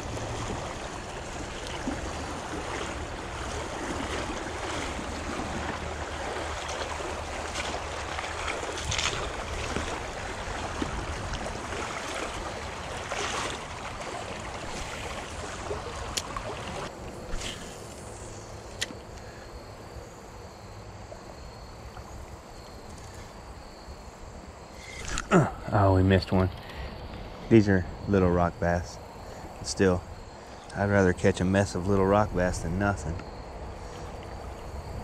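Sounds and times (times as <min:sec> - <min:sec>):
creek water running: 0:00.0 - 0:19.4.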